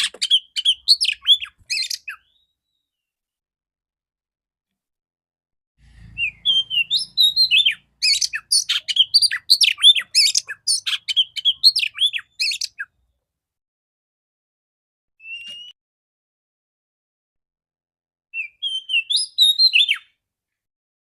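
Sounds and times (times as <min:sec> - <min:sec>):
bird singing chirps and whistles: 0:00.0 - 0:02.6, 0:06.2 - 0:12.9, 0:15.2 - 0:15.8, 0:18.4 - 0:20.1.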